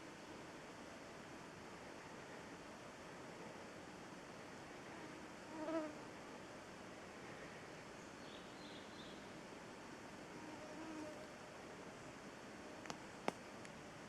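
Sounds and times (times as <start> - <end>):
faint forest hiss: 0.0 - 14.0
insect buzzing past: 5.4 - 6.1.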